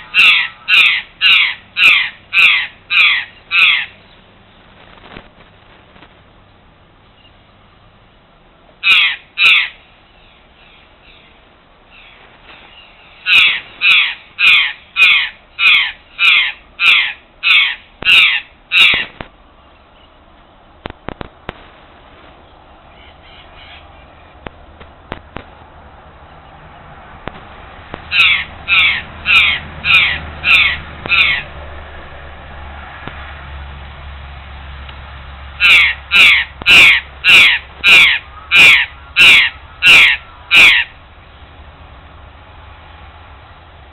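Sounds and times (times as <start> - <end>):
bird giving harsh caw calls: 0.0 - 4.0, 8.8 - 9.8, 12.8 - 19.2, 28.1 - 31.6, 35.6 - 41.0.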